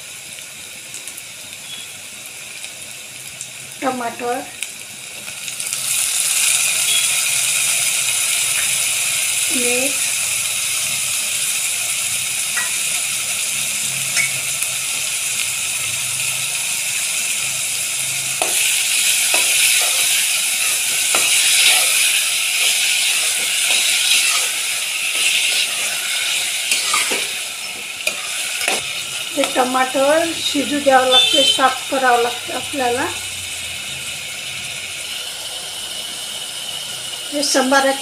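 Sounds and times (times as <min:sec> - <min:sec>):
vegetables sizzling in oil: 0:00.0 - 0:38.0
metal spoon scraping a pot: 0:18.4 - 0:29.0.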